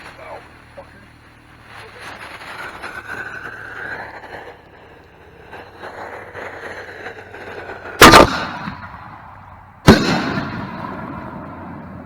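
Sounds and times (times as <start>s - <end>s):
fuse hissing and crackling: 0.0s - 8.9s
firework mortar launch boom: 5.6s - 12.0s
firework shell bursting bang: 8.0s - 12.0s.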